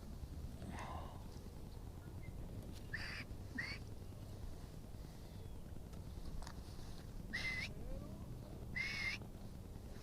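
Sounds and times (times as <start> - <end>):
steady low rumble: 0.0 - 10.0
short bird calls: 2.2 - 3.9, 7.3 - 7.8, 8.7 - 9.2.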